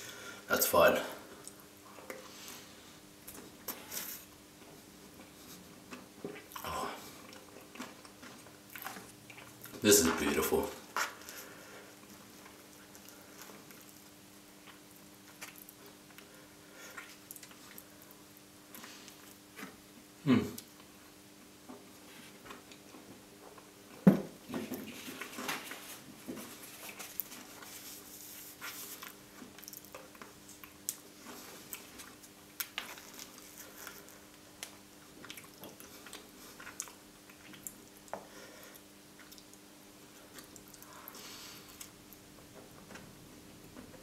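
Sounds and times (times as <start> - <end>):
wet chewing: 5.9 - 9.8, 12.0 - 19.7, 28.9 - 39.6.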